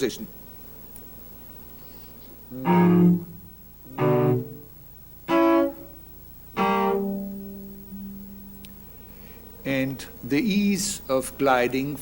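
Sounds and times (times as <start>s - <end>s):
cello bowing notes: 2.4s - 9.3s.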